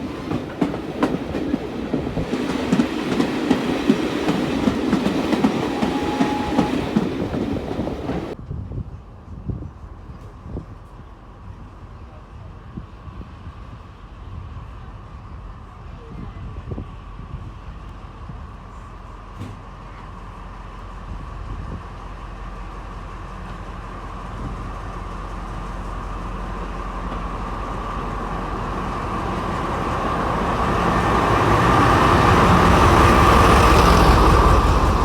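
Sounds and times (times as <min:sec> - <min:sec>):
train approaching: 0:00.0 - 0:08.5, 0:16.7 - 0:35.0.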